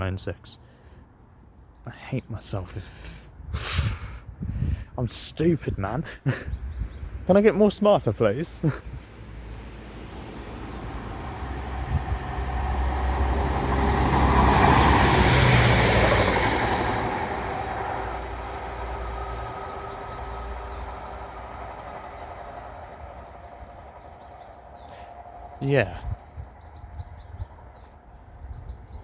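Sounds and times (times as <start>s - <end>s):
train engine hum: 4.3s - 29.0s
train wheel noise: 8.2s - 27.2s.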